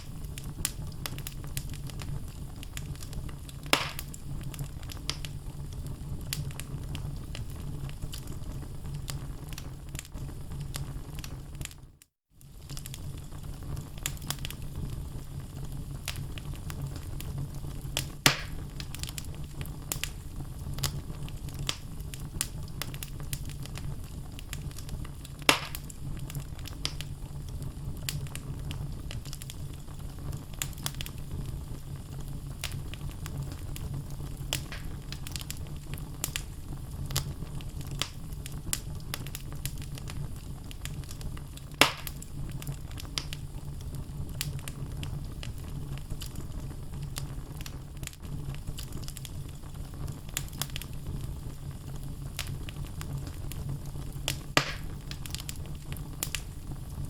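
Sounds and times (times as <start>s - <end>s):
wood fire crackling: 0.0s - 57.0s
loud sharp pops: 3.7s - 4.2s, 18.2s - 18.7s, 25.5s - 25.9s, 34.6s - 35.0s, 41.8s - 42.2s, 54.3s - 55.0s.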